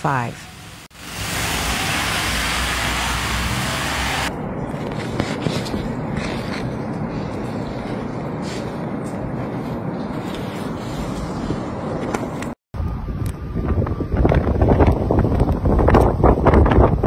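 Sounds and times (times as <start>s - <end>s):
loud even hiss: 0.4s - 4.3s.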